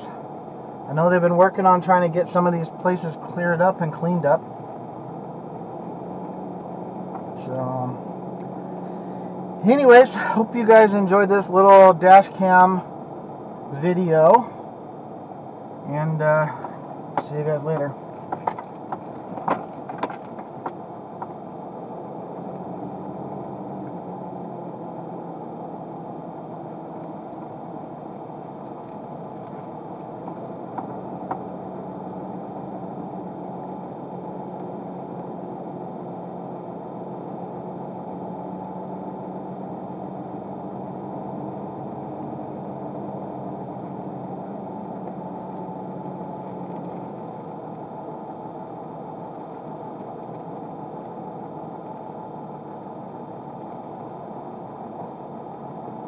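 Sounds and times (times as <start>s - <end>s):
car engine and road hum: 0.0s - 56.0s
low hum: 0.0s - 56.0s.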